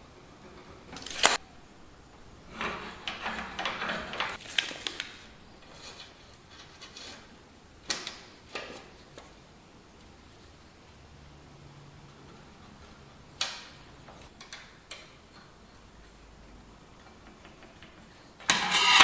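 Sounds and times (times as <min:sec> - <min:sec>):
clattering and clicking: 0:02.5 - 0:05.1.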